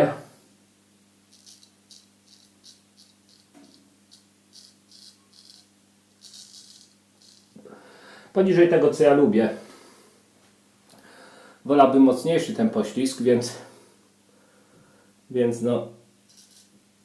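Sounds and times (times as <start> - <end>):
razor scraping through stubble: 1.3 - 7.5.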